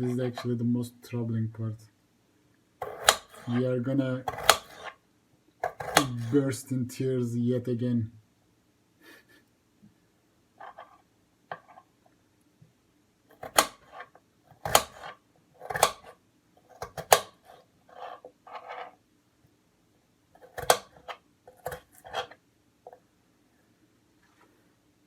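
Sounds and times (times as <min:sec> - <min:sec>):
utensils scraping and clattering: 0:20.6 - 0:22.4.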